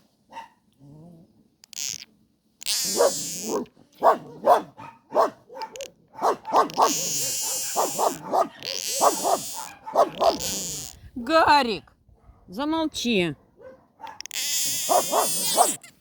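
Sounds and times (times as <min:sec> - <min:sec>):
animal bark-like calls: 0:02.8 - 0:10.9, 0:13.6 - 0:15.9
animal hissing: 0:06.6 - 0:11.0, 0:14.3 - 0:15.8.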